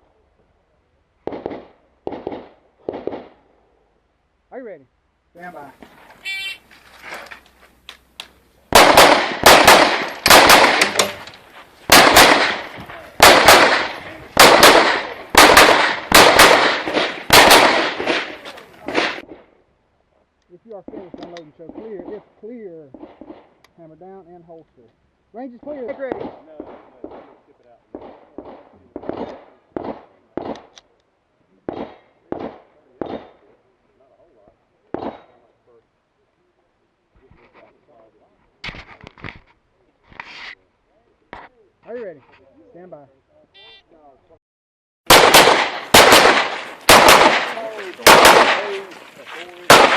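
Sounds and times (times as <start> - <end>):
rapid pistol shots: 1.2 - 3.4, 8.7 - 11.2, 11.9 - 19.5, 22.9 - 23.6, 25.9 - 30.7, 31.7 - 33.4, 45.1 - 49.0, 49.7 - 49.9.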